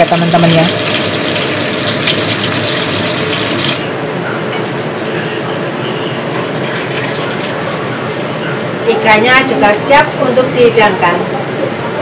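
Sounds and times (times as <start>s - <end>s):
fish sizzling in hot oil: 0.2s - 3.8s.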